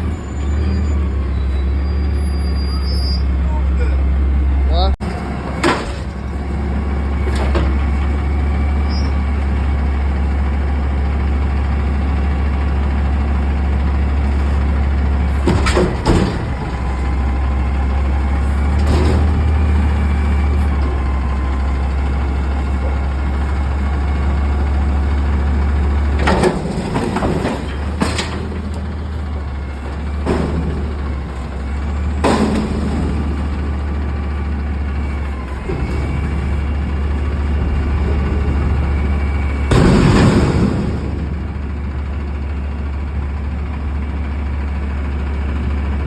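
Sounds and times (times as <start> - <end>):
diesel engine running: 0.0 - 46.0
knocks and bangs from lift: 30.0 - 33.9, 38.2 - 42.2.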